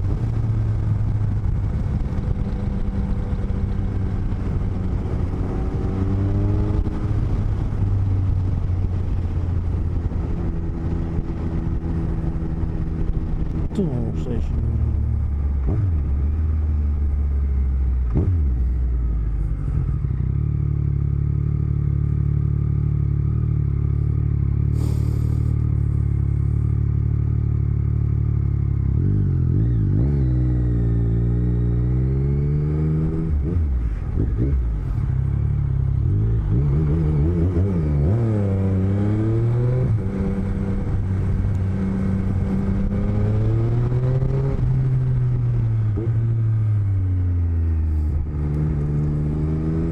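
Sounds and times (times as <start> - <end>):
wind noise: 0.0 - 16.2
motorcycle engine: 0.0 - 49.9
road noise: 0.0 - 49.9.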